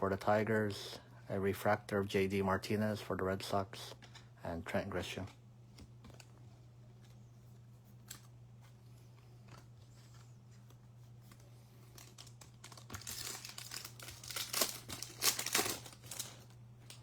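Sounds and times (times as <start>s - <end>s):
steady low hum: 0.0s - 17.0s
foil card pack crinkling and tearing: 11.3s - 17.0s.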